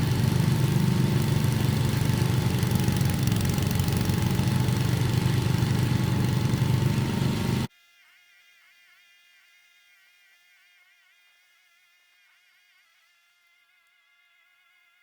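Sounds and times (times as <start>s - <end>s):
engine idling: 0.0s - 7.7s.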